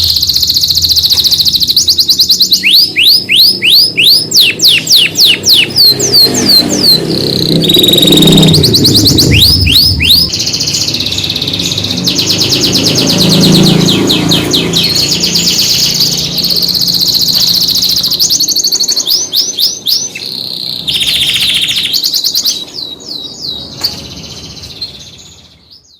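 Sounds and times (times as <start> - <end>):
canaries singing trills: 0.0 - 25.9
low rumble: 6.7 - 10.9.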